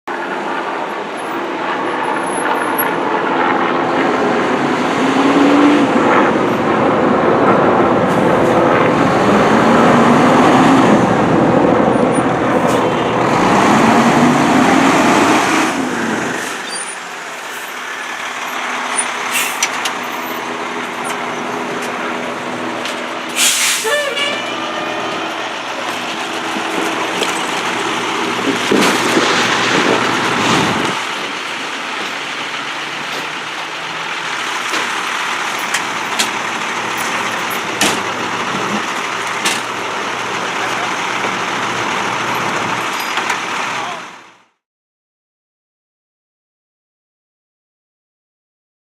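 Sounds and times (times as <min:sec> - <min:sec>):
fire engine running: 0:00.1 - 0:44.6
air brakes hissing: 0:19.3 - 0:19.7, 0:23.3 - 0:24.3.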